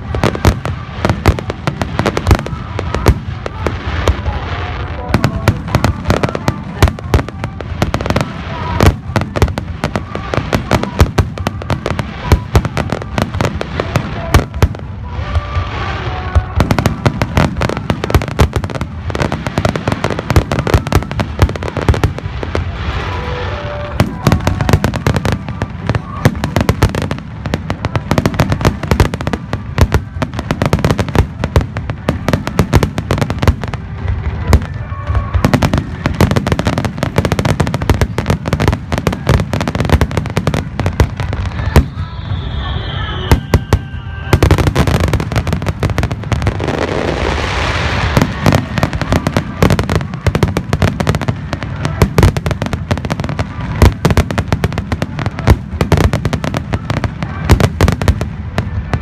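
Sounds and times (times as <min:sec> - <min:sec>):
fireworks bursting: 0:00.0 - 0:59.0
voices: 0:00.0 - 0:59.0.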